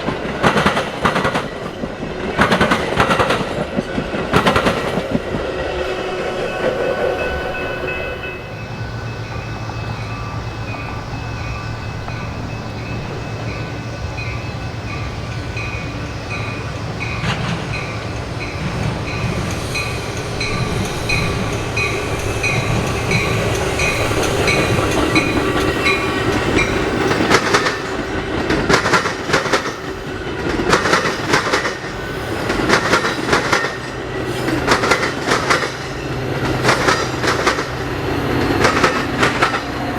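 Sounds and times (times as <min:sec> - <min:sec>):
wheels clacking over rail joints: 0:00.0 - 0:05.6, 0:09.0 - 0:39.9
train rolling past: 0:00.0 - 0:39.9
high pulsing ringing tone: 0:05.9 - 0:17.2.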